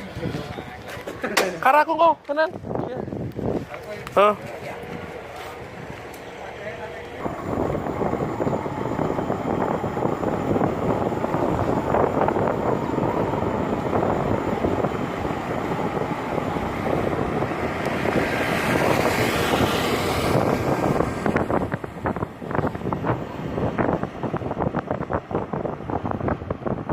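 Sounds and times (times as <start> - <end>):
wind noise on microphone: 2.0 - 6.1, 7.2 - 26.9
motor running: 3.8 - 24.0.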